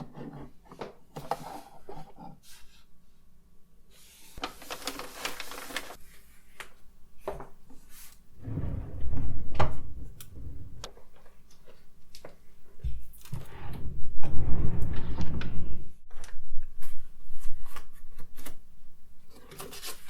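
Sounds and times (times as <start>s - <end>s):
drawer sliding: 8.4s - 11.2s, 13.2s - 16.0s.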